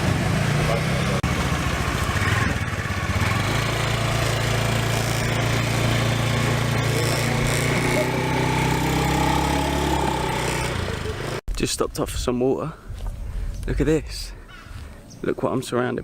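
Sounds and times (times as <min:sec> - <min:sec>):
small motorbike engine running: 0:00.0 - 0:11.4
wind and road noise: 0:00.0 - 0:16.0.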